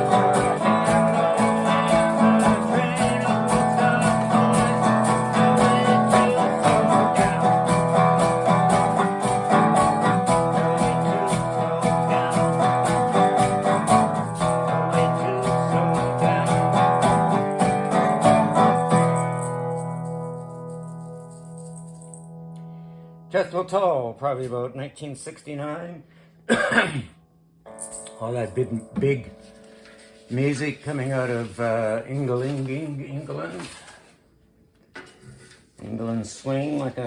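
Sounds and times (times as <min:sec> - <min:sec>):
guitar strumming: 0:00.0 - 0:23.6.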